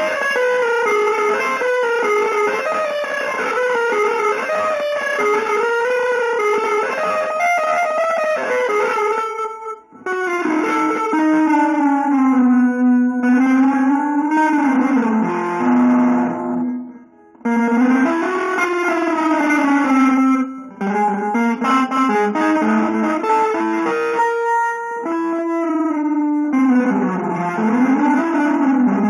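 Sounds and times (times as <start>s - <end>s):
electric guitar sliding notes: 0.0s - 29.0s.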